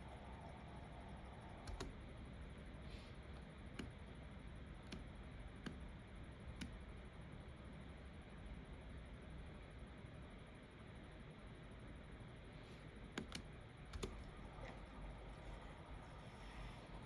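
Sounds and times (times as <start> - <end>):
faint steady hum: 0.0 - 17.0
computer mouse clicks: 1.6 - 2.0, 3.4 - 4.2, 4.8 - 5.9, 6.5 - 6.9, 13.1 - 14.3.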